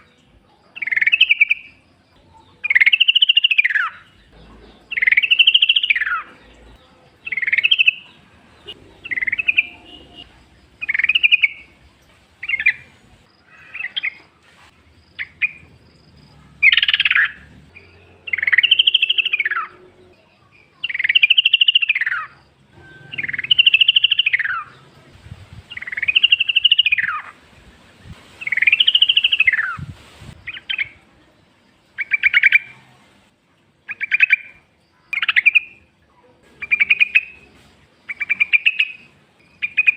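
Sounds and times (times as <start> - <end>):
bulbul singing bubbly phrases: 5.0 - 11.8.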